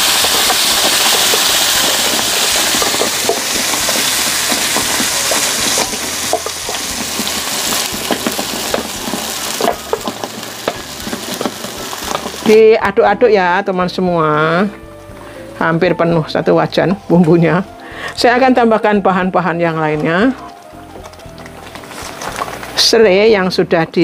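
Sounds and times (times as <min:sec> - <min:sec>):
oil crackling and popping: 0:00.0 - 0:14.0, 0:19.4 - 0:24.0
spice paste sizzling in hot oil: 0:00.0 - 0:24.0.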